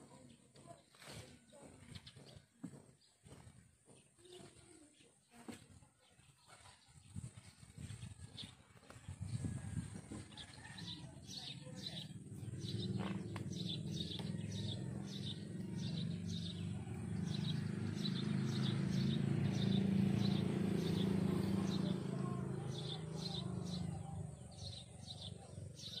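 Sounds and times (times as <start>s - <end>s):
bird chirping: 10.4s - 26.0s.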